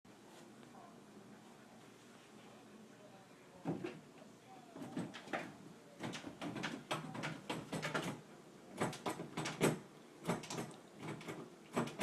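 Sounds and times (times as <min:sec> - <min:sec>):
door knocking: 0:06.0 - 0:08.2, 0:08.8 - 0:12.0
door handle rattling: 0:06.0 - 0:12.0.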